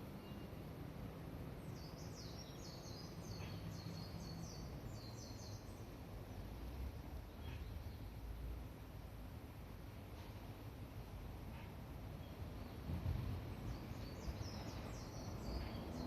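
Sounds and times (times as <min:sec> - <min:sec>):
low background rumble: 0:00.0 - 0:16.0
bird twittering: 0:01.7 - 0:05.8.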